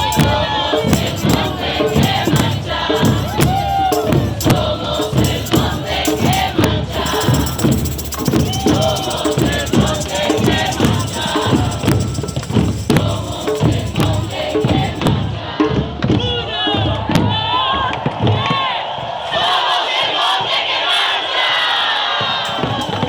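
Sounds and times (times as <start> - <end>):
hand percussion beat: 0.0 - 15.8, 22.4 - 23.0
crowd chanting and singing: 0.0 - 23.0.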